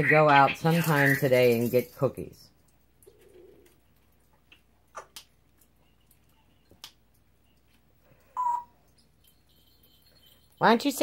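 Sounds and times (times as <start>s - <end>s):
parrot whistling: 8.4s - 8.7s.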